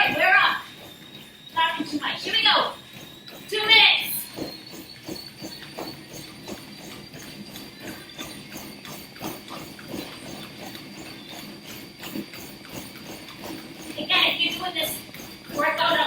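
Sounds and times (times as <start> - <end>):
footfalls on treadmill: 0.0 - 16.0.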